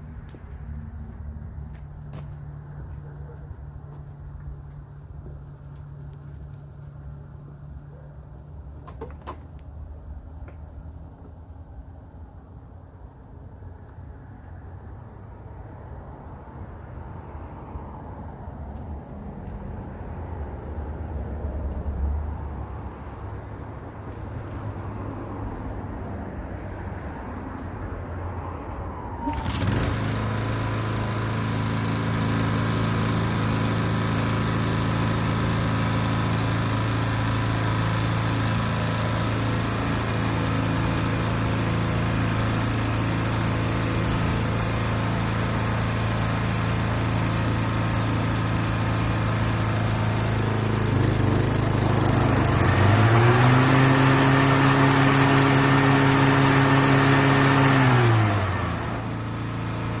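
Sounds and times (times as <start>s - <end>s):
lawn mower engine running: 3.7s - 10.6s, 29.1s - 60.0s.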